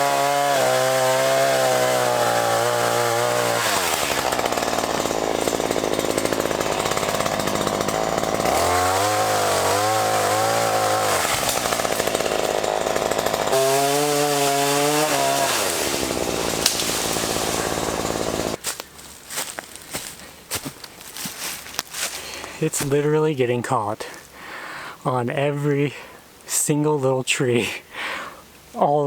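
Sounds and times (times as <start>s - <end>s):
chainsaw cutting: 0.0s - 23.3s.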